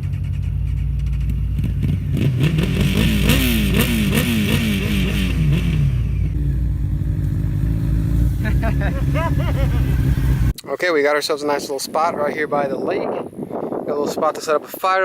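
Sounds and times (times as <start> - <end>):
motorcycle engine revving: 0.0 - 10.6.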